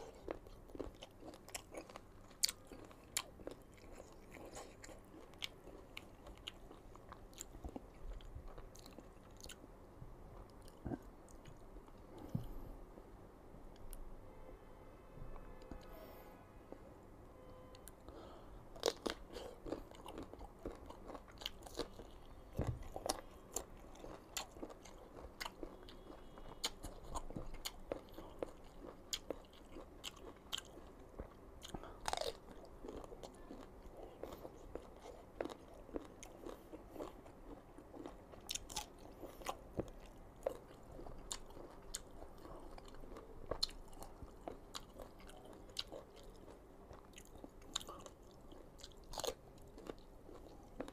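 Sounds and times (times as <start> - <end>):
person crunching crisp mango: 18.8 - 50.9.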